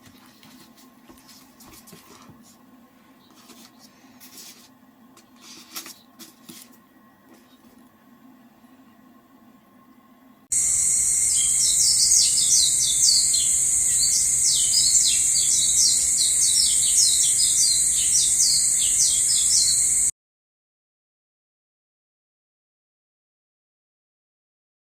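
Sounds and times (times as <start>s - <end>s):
high-pitched insect-like hiss: 10.5s - 20.1s
small birds chirping: 10.5s - 20.1s.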